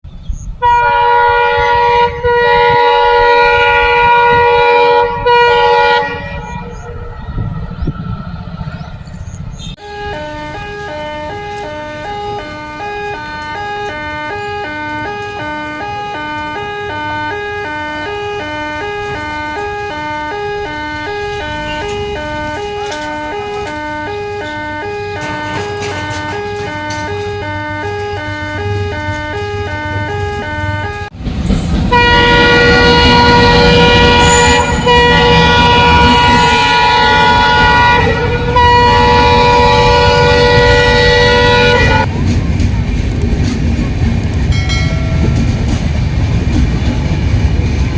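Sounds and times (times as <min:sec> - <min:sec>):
train rumbling on track: 0:00.0 - 0:47.9
train horn blasts: 0:00.6 - 0:06.9, 0:09.8 - 0:31.2, 0:31.8 - 0:42.2
two-tone electronic warning hooter: 0:00.6 - 0:42.1.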